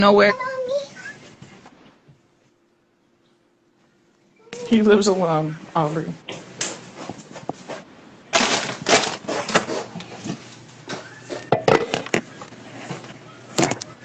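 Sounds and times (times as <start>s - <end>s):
crunching and crackling: 8.3s - 10.6s.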